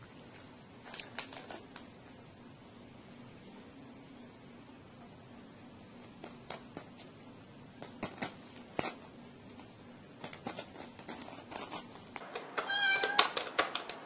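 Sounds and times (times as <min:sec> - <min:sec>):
cat meowing: 0:12.6 - 0:13.4.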